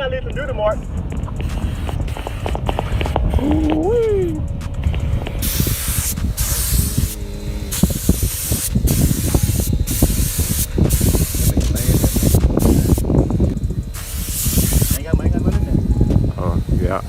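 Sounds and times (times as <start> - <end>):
low rumble: 0.0 - 17.0
spray gun hissing: 1.4 - 3.5, 5.0 - 15.5.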